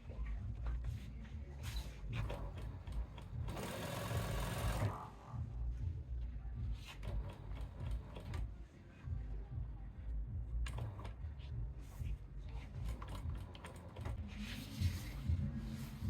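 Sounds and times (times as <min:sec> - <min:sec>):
steady low rumble: 0:05.3 - 0:06.8.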